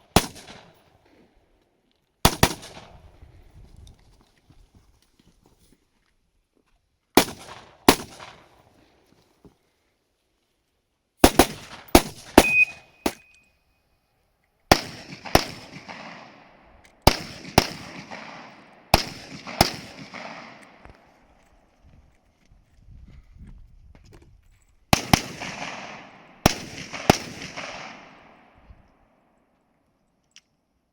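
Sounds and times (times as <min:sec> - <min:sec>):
rifle shots echoing: 0:00.0 - 0:00.9, 0:02.2 - 0:03.1, 0:07.2 - 0:08.7, 0:11.2 - 0:13.3, 0:14.7 - 0:21.2, 0:24.9 - 0:28.7
short ringing tone: 0:12.4 - 0:13.6.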